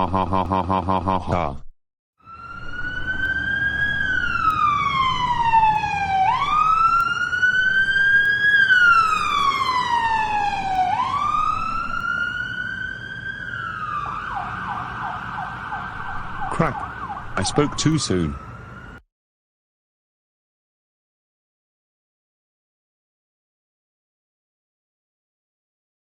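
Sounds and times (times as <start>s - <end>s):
police siren wailing: 2.2s - 19.0s.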